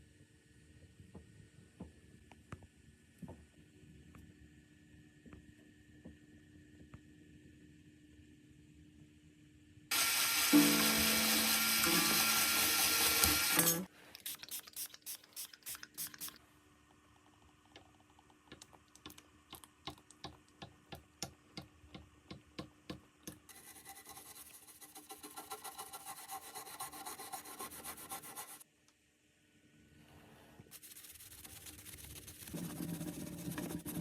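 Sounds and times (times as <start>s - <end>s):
hand rubbing on guitar: 30.8s - 34.0s.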